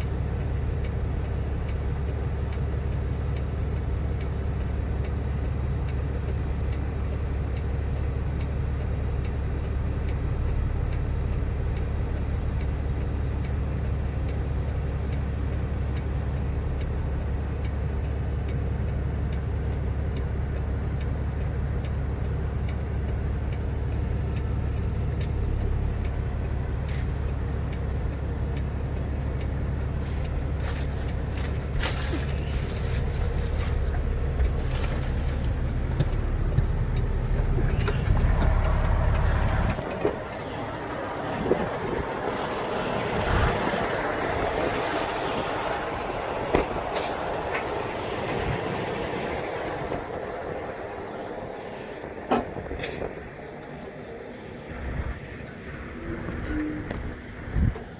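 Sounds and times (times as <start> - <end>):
diesel engine idling: 0.0 - 57.9.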